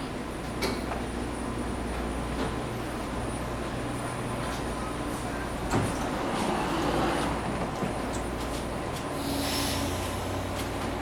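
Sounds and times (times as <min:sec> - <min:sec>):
train low hum: 0:00.0 - 0:11.0
sliding doors closing with hiss: 0:05.6 - 0:07.8, 0:09.0 - 0:11.0.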